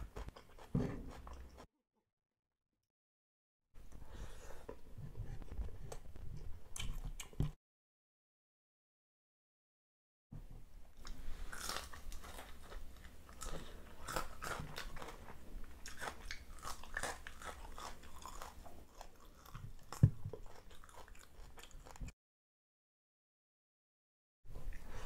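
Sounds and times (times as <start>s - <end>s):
crunchy chewing: 5.4s - 7.6s, 11.0s - 22.1s.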